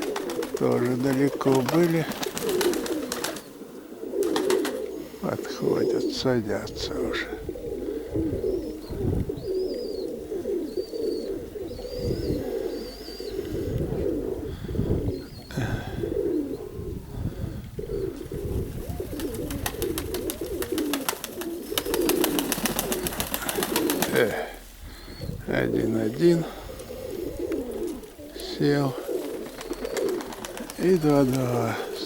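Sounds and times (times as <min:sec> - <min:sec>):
pigeon wingbeats fluttering: 0:00.0 - 0:03.5, 0:04.1 - 0:04.9, 0:18.2 - 0:24.4, 0:28.9 - 0:32.0
pigeons cooing: 0:00.0 - 0:32.0
small bird chirping: 0:08.4 - 0:13.5.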